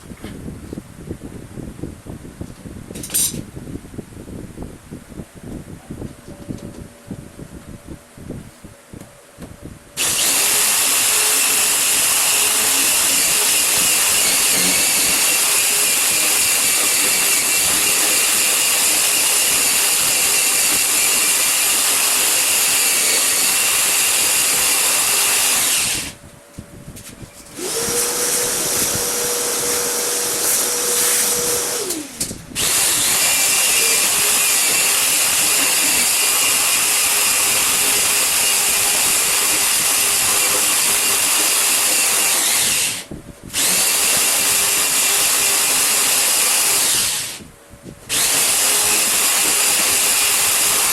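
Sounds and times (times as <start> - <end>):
motor whine: 10.0 - 26.2, 27.4 - 47.5
woodworking power tool running: 10.0 - 26.2, 27.6 - 47.5, 48.1 - 50.9.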